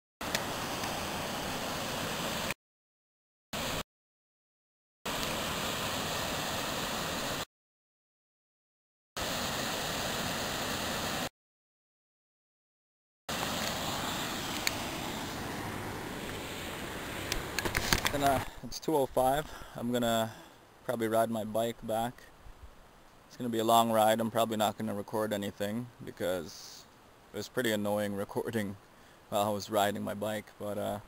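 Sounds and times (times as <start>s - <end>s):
waterfall and river rushing: 0.2s - 2.6s, 5.1s - 7.4s, 9.2s - 11.3s, 13.3s - 18.3s.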